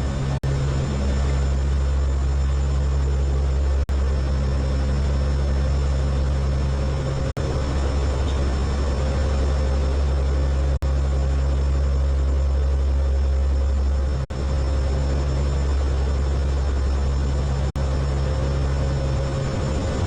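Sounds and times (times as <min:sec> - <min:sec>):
aircraft engines droning: 0:00.0 - 0:20.0
faint high whine: 0:00.0 - 0:20.0.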